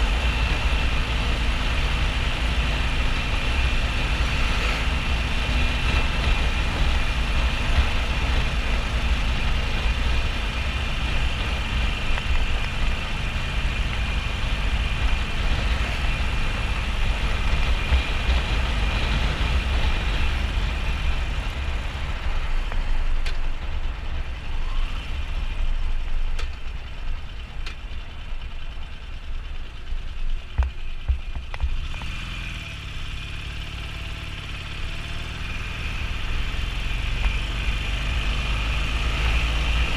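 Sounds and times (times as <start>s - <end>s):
wind rushing over microphone: 0.0s - 24.9s
motorcycle engine running: 0.0s - 39.9s.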